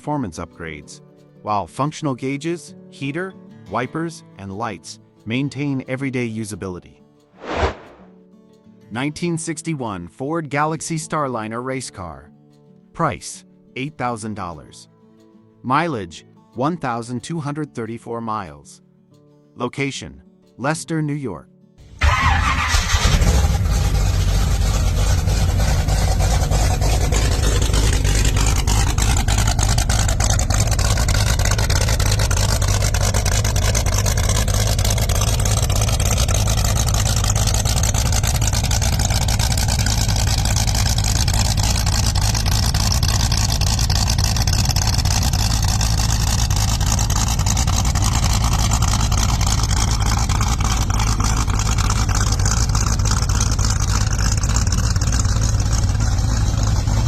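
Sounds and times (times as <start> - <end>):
car engine idling: 21.8 - 57.0.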